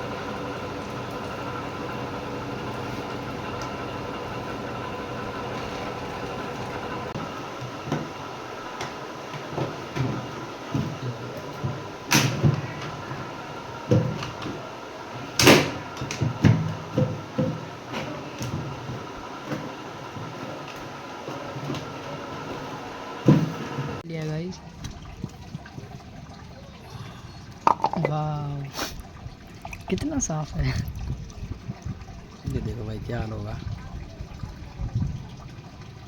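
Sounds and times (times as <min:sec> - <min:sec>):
steady hum: 0:00.0 - 0:19.3.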